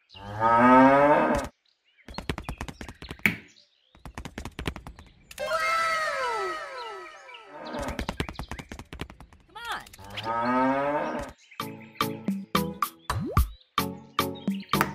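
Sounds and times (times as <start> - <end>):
hoof clip-clop: 7.8 - 10.1.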